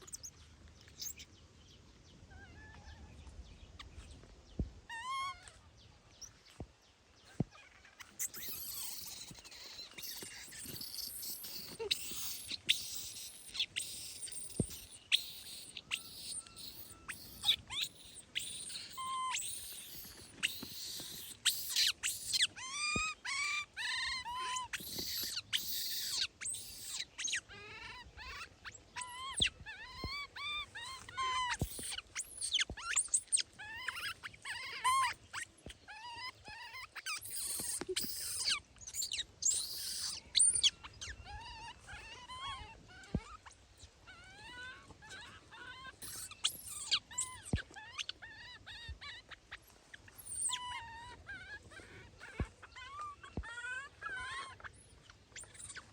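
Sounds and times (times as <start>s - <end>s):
baby monkeys squealing: 0.0s - 0.3s, 0.9s - 1.3s, 4.9s - 5.6s, 7.3s - 55.9s
rustling: 7.2s - 23.2s.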